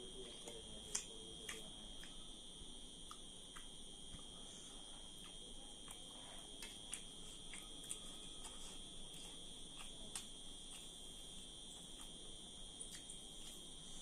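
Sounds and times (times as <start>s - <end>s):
person eating: 5.1s - 12.2s.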